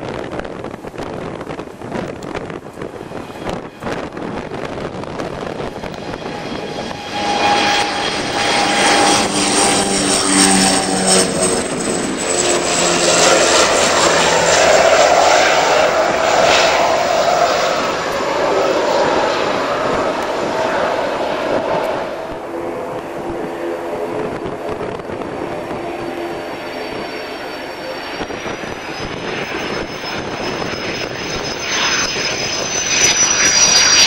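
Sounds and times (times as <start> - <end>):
aircraft engine passing: 0.0 - 34.0.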